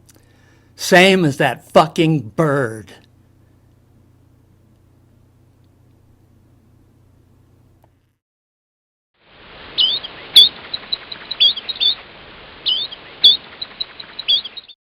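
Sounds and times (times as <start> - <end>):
songbird singing: 9.8 - 12.0, 12.7 - 14.8.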